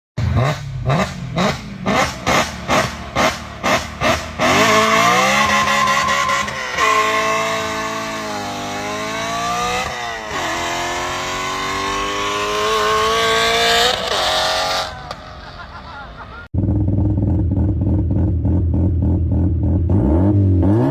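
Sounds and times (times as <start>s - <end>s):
car engine revving: 0.2s - 15.7s, 16.6s - 20.9s.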